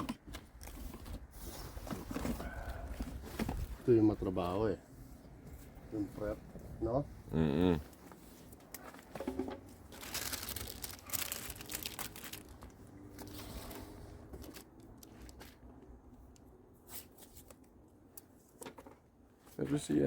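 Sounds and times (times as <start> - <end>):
paper crinkling and rustling: 9.8 - 15.7.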